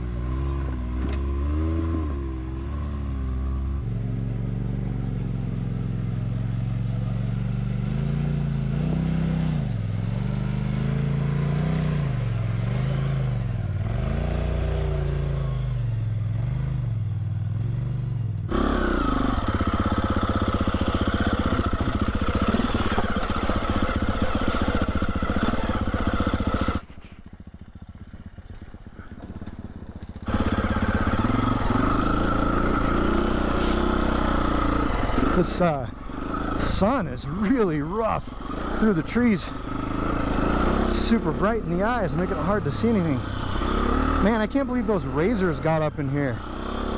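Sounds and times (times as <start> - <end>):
dirt bike engine revving: 7.4 - 15.6, 18.5 - 46.9.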